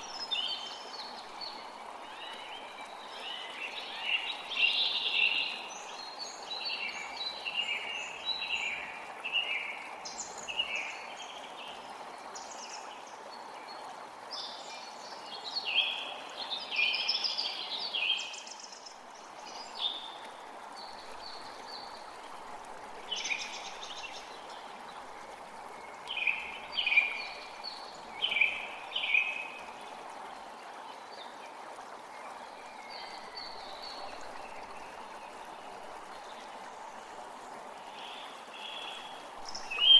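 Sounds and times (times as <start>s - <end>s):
creek water running: 0.0s - 39.9s
songbirds chirping: 0.0s - 39.9s.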